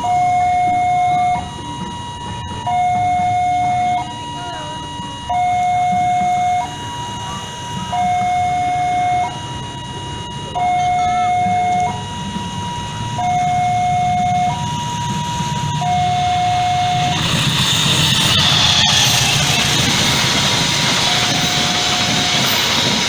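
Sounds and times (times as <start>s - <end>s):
approaching train rush: 0.0s - 10.6s, 11.2s - 23.0s
level crossing two-tone alarm: 0.0s - 23.0s.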